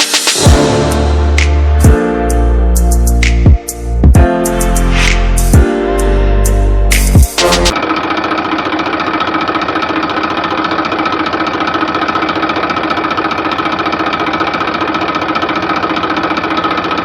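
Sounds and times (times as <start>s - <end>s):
tractor motor running: 7.4s - 17.0s.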